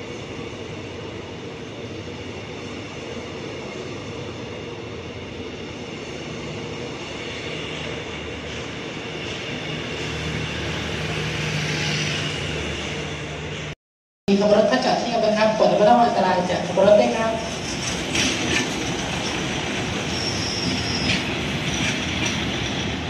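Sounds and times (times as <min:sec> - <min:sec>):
train wheels clattering on track: 0:17.5 - 0:23.0.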